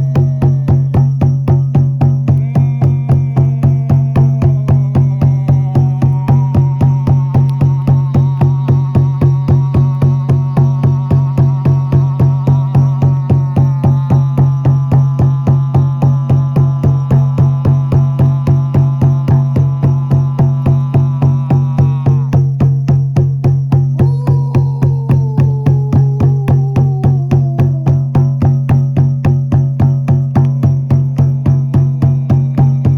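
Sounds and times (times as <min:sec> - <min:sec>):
higher held tones: 0:02.4 - 0:09.4, 0:24.0 - 0:28.6
sustained low drone: 0:02.4 - 0:22.3, 0:24.0 - 0:28.9.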